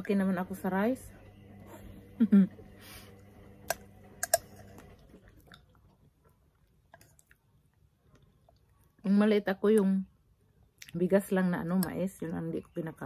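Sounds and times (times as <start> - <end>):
person chewing: 4.2 - 8.8.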